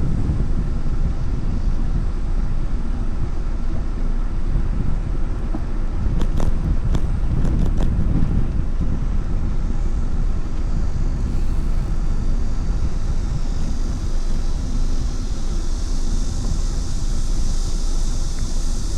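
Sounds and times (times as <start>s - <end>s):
wind on microphone: 0.0s - 18.9s.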